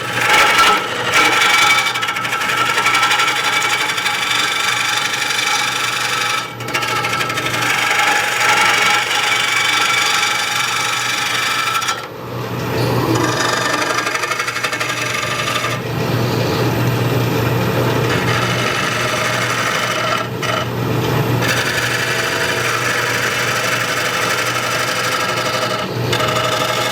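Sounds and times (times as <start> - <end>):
lathe motor hum: 0.0 - 26.9
lathe tool cutting wood hiss: 13.2 - 16.7.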